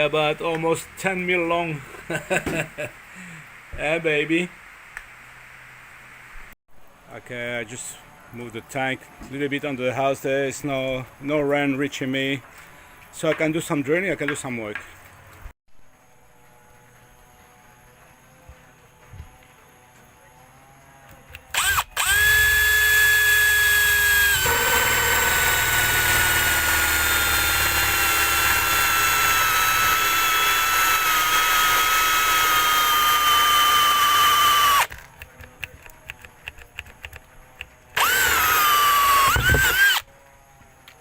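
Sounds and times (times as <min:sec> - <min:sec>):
electric drill whining: 0:21.1 - 0:40.1.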